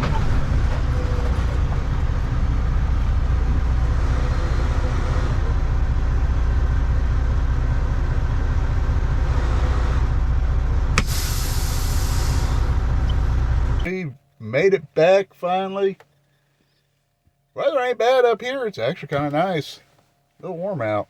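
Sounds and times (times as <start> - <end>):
road noise: 0.0 - 14.0
truck diesel engine drone: 0.0 - 16.0
air hiss: 11.0 - 12.8.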